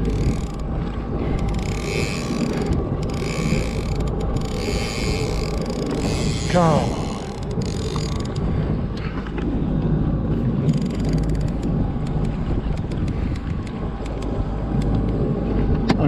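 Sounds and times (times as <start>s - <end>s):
fishing reel clicking and creaking: 0.0s - 8.5s, 10.6s - 14.9s
boat motor rumble: 0.0s - 16.0s.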